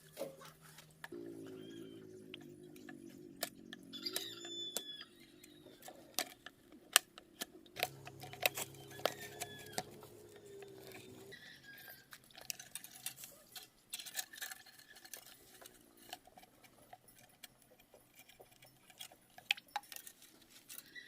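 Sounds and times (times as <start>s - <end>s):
high chirps: 1.2s - 5.8s
steady low hum: 7.6s - 11.4s.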